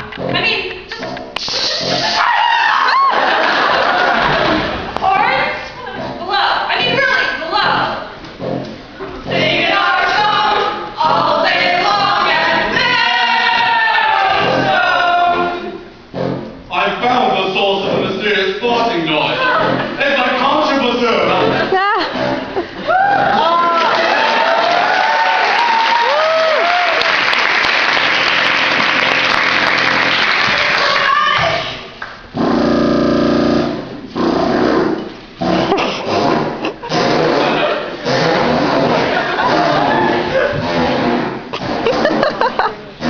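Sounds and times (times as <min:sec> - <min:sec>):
audience whoops: 0:01.9 - 0:04.1, 0:22.9 - 0:31.2
audience applauding and cheering: 0:01.9 - 0:05.0, 0:22.9 - 0:32.3
ensemble singing close harmony chords: 0:05.8 - 0:22.8.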